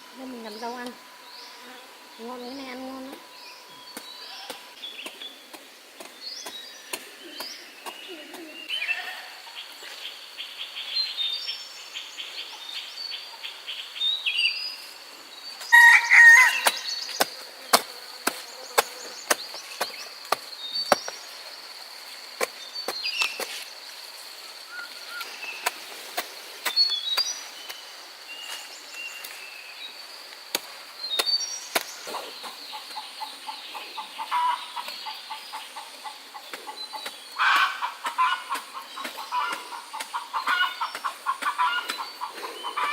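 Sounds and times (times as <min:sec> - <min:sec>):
high insect drone: 0:00.0 - 0:42.9
rooster crowing: 0:15.7 - 0:16.9
hens clucking: 0:32.1 - 0:42.9.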